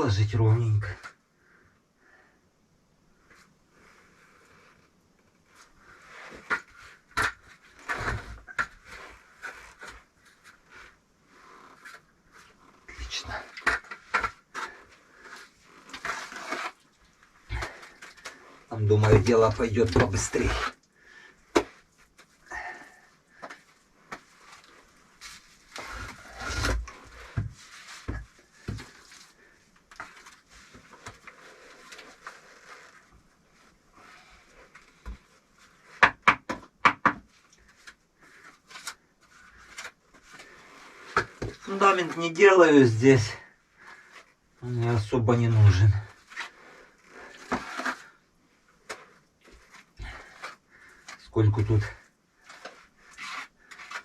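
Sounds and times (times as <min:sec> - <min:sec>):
mortar scraping: 0:05.5 - 0:54.0
trowel scraping mortar: 0:11.4 - 0:21.9, 0:22.8 - 0:29.4, 0:43.8 - 0:48.2, 0:52.4 - 0:54.0.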